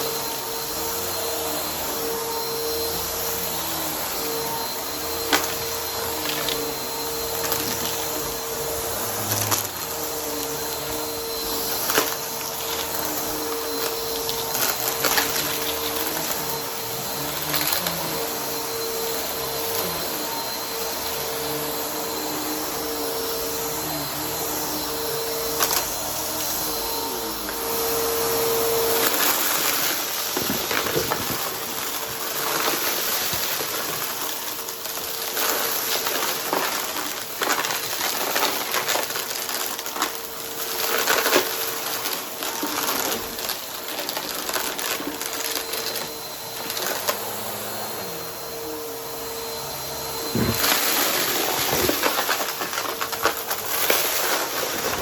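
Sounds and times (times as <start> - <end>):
vacuum cleaner motor whine: 0.0 - 55.0
debris crackling in vacuum: 3.6 - 23.6, 50.2 - 55.0.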